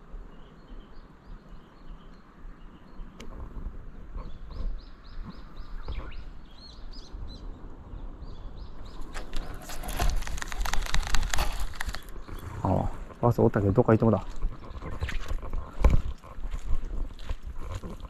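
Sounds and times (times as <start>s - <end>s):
scratchy rustling and crackling: 9.0s - 12.4s
small bird chirping: 13.5s - 15.8s.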